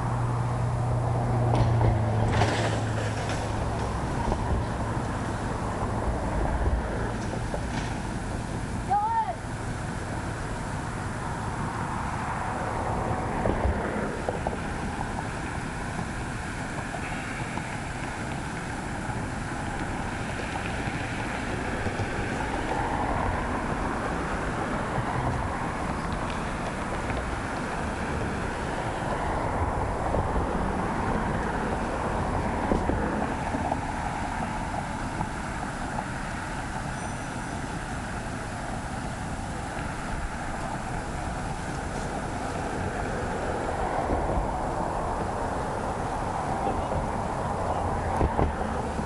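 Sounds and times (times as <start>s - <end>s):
wind rushing over microphone: 0.0s - 37.0s, 37.7s - 49.0s
bicycle tyres rolling on pavement: 0.0s - 49.0s
wind buffeting microphone: 37.6s - 49.0s.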